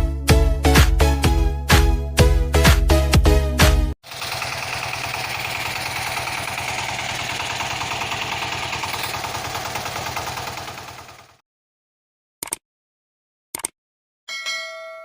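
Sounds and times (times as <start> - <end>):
background music with a beat: 0.0 - 4.0.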